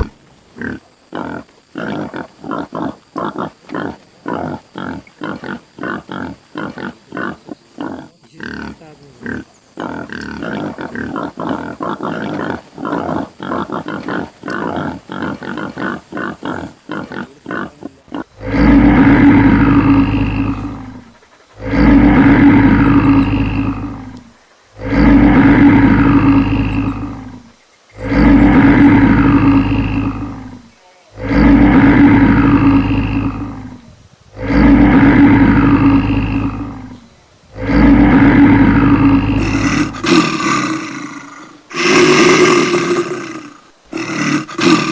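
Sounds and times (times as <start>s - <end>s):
animal grunting: 0.0s - 44.9s
animal deep roar: 9.9s - 44.9s.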